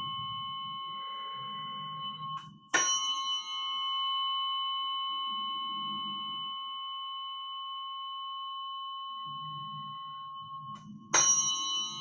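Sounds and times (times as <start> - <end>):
tuning forks ringing: 0.0 - 12.0.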